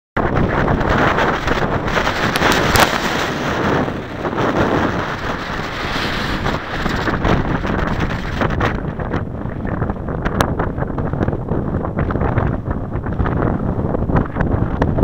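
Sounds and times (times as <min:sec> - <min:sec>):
wind buffeting microphone: 0:00.2 - 0:15.0
brief crackles: 0:01.4 - 0:03.4.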